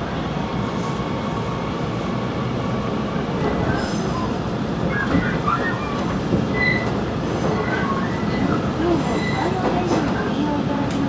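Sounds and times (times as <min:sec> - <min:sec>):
train wheels rumbling: 0:00.0 - 0:11.0
high squeaks: 0:04.9 - 0:07.0.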